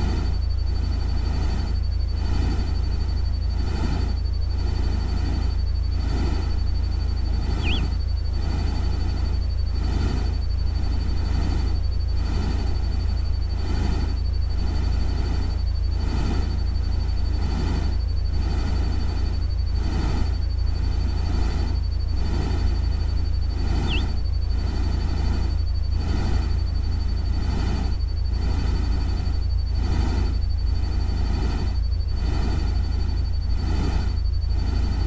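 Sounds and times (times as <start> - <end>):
thin high whine: 5.3 - 9.4, 22.2 - 27.0
short chirp: 7.6 - 7.9, 23.8 - 24.1.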